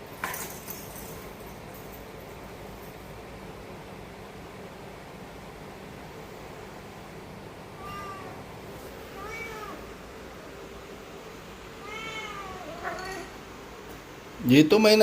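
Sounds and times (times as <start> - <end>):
cat meowing: 7.8 - 8.5, 9.1 - 10.0, 11.8 - 13.4.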